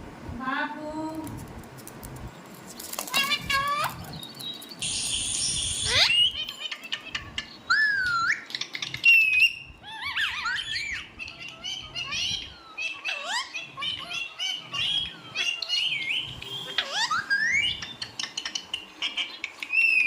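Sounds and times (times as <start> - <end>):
parrot whistling and chattering: 4.8 - 20.0.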